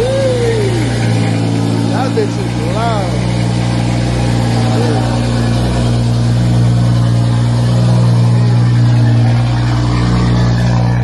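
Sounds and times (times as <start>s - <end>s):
car engine with loud exhaust: 0.0s - 11.0s.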